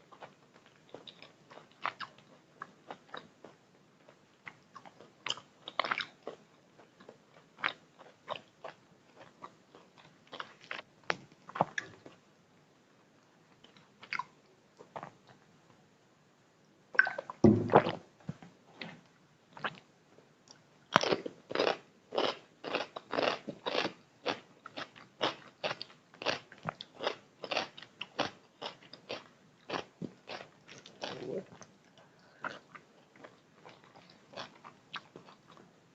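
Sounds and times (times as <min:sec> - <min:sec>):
person chewing food: 0:00.1 - 0:12.2, 0:20.5 - 0:35.7.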